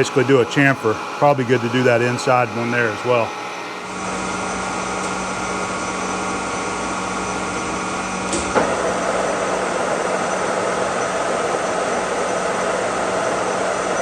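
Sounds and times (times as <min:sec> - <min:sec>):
milling machine gear whine: 0:00.0 - 0:14.0.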